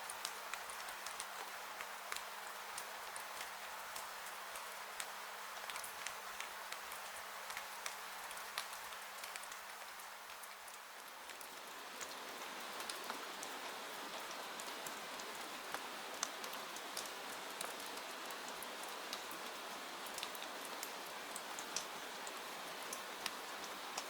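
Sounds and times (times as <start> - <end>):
steady rain hiss: 0.0 - 24.0
raindrop ticks: 15.7 - 18.1, 18.8 - 24.0.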